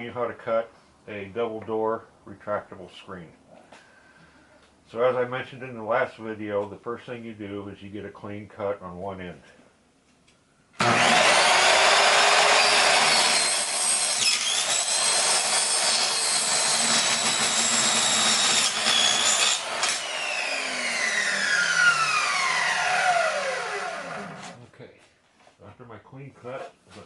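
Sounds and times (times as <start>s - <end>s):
power saw whining: 10.8s - 24.6s
saw blade winding down: 10.8s - 24.6s.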